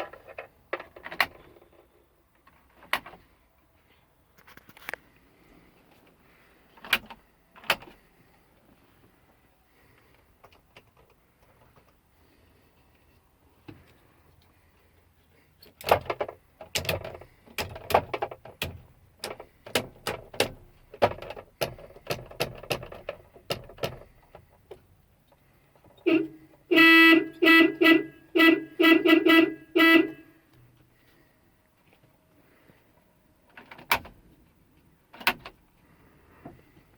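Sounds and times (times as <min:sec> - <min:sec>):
clicks and knocks of cab controls: 0:02.4 - 0:03.2, 0:06.7 - 0:08.0, 0:15.6 - 0:28.1, 0:33.5 - 0:34.2, 0:35.1 - 0:35.6
truck horn honks: 0:26.0 - 0:30.5.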